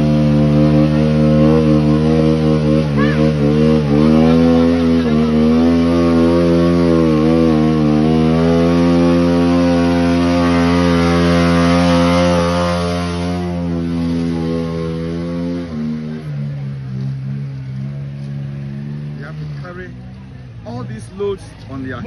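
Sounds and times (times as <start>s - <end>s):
small engine running loud: 0.0s - 20.8s.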